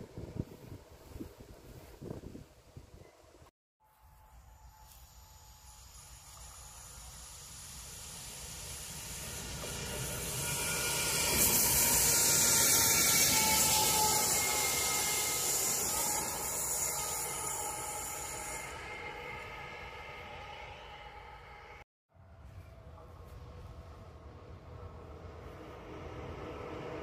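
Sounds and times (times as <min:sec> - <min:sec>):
hiss of wheels on rails: 0:04.7 - 0:21.8, 0:24.4 - 0:27.0
faint squealing tones: 0:09.2 - 0:21.8.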